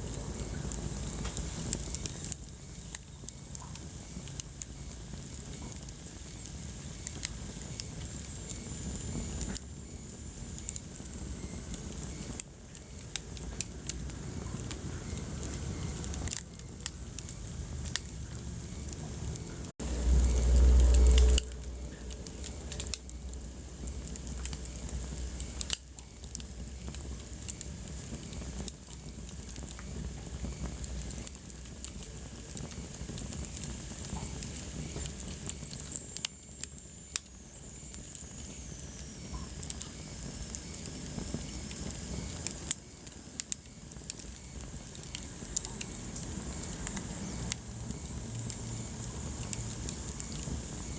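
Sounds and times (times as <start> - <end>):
wood fire crackling: 0.0 - 50.9
low rumble: 13.4 - 25.7.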